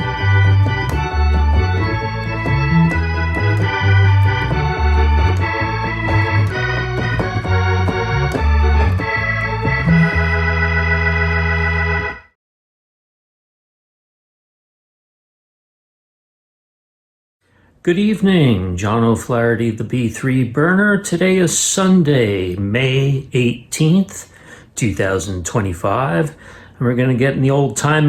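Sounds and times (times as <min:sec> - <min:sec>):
bass line: 0:00.0 - 0:12.3
organ chords: 0:00.0 - 0:12.4.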